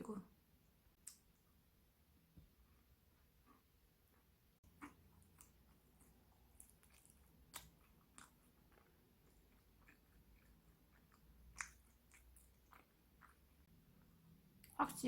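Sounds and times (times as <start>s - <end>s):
close-up chewing: 2.7s - 14.8s
wet mouth clicks: 11.4s - 13.4s.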